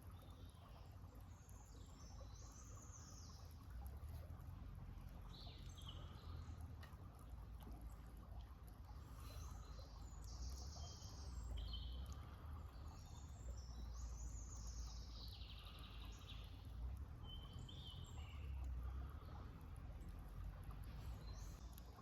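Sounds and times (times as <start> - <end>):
faint outdoor rumble: 0.0 - 22.0
songbirds trilling: 8.9 - 21.8.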